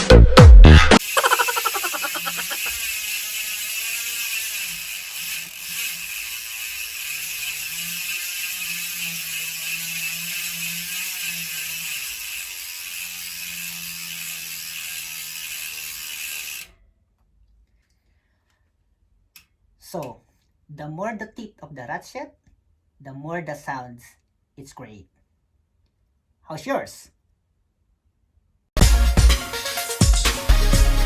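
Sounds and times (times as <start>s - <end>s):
bicycle freehub ratchet buzzing: 1.0s - 16.7s.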